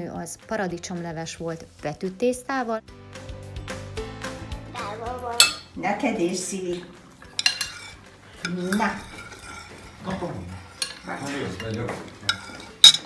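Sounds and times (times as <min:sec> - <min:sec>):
metal spoon stirring in bowl: 0:05.4 - 0:05.7, 0:07.1 - 0:13.0
spoon clinking against bowl: 0:05.4 - 0:05.7, 0:07.2 - 0:09.9, 0:10.7 - 0:13.0.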